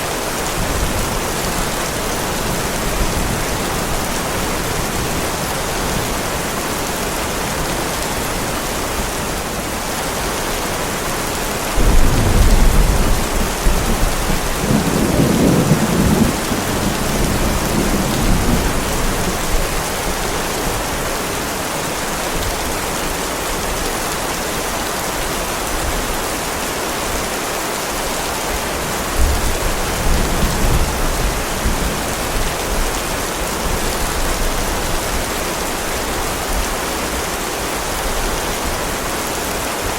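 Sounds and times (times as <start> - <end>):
heavy rain: 0.0 - 39.9
deep thunder rumble: 11.8 - 19.7.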